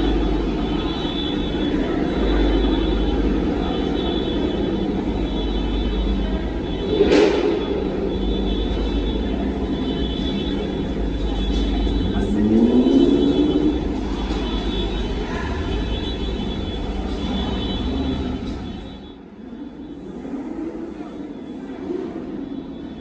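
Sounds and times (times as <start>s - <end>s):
car engines rumbling: 0.0s - 23.0s.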